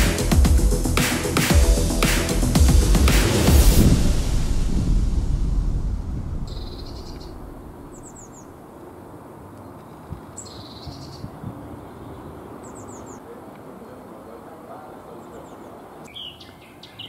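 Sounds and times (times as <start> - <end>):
background music: 0.0 - 6.3
soft low thumps: 0.0 - 8.1
songbird calling: 6.5 - 8.6, 15.0 - 17.0.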